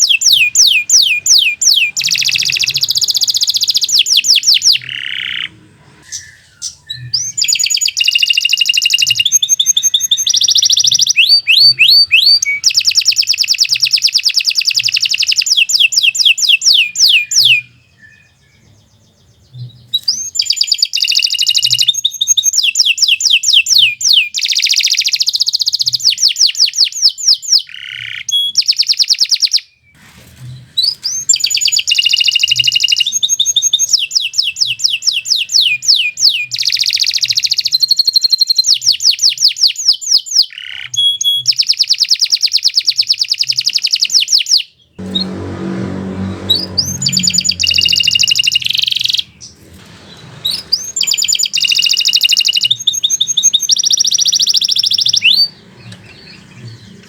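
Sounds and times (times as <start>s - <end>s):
canary singing trills: 0.0s - 29.8s, 30.8s - 57.0s.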